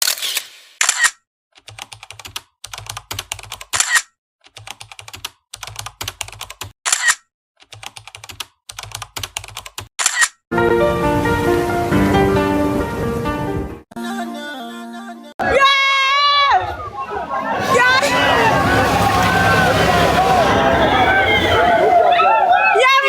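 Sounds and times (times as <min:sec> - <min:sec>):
rapid typing clicks: 0:01.6 - 0:06.7, 0:07.6 - 0:10.2.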